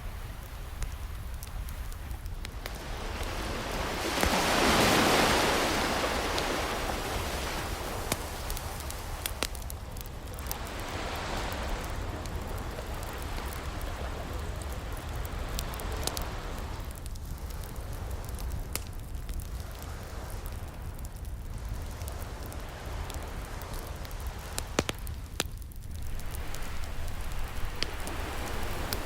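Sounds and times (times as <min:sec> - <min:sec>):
ocean waves breaking: 0:00.0 - 0:16.9, 0:25.8 - 0:29.0
wood fire crackling and popping: 0:00.0 - 0:29.0.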